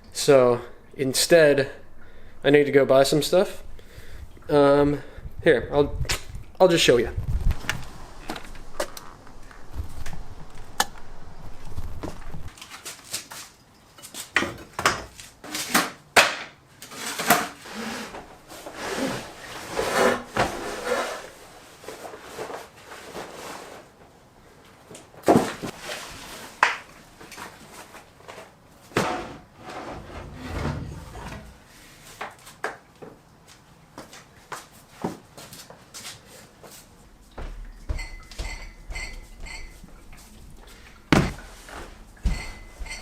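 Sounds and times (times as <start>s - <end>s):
objects knocking and rubbing: 41.1s - 43.0s.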